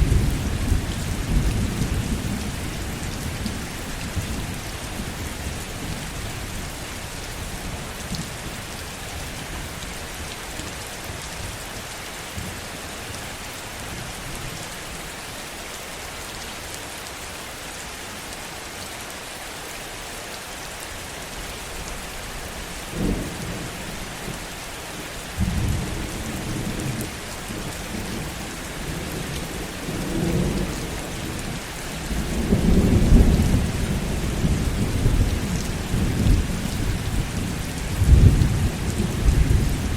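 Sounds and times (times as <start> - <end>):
rolling thunder rumble: 0.0 - 6.0, 28.8 - 39.9
heavy rain: 0.0 - 39.9.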